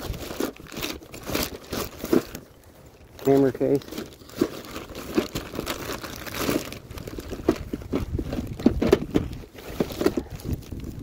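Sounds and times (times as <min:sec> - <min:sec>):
plastic bag crinkling and rustling: 0:00.0 - 0:11.0
items knocking and clicking: 0:03.8 - 0:10.8.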